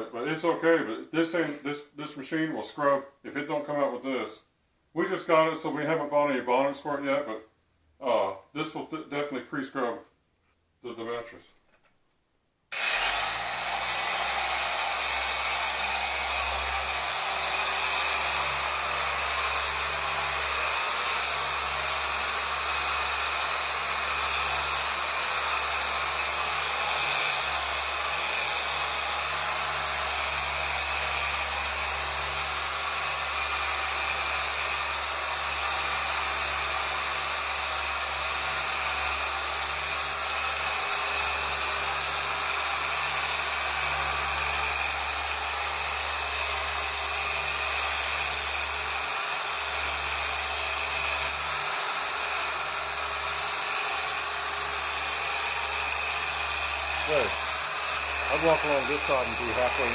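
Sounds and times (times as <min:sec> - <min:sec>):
orbital polisher whining: 0:12.7 - 0:59.9.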